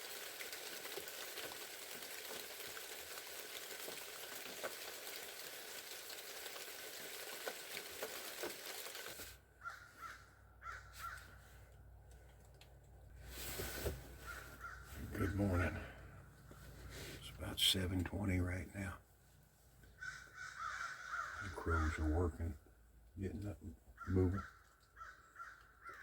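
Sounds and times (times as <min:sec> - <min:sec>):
freezing rain and sleet hissing: 0:00.0 - 0:09.4, 0:13.2 - 0:19.0
crows cawing: 0:09.6 - 0:11.4, 0:14.2 - 0:16.2, 0:20.0 - 0:22.2, 0:24.0 - 0:26.0.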